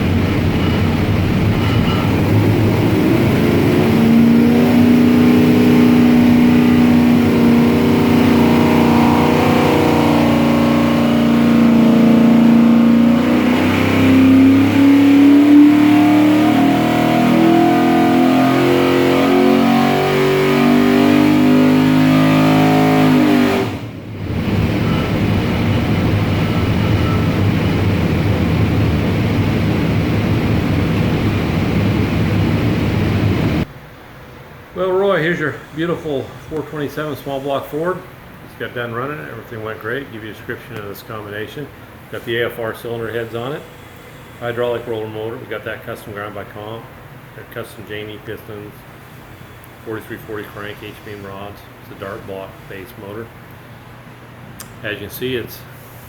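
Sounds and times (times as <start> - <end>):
low engine rumble: 0.0 - 18.7, 23.6 - 56.0
engine revving on a dyno: 0.0 - 33.7.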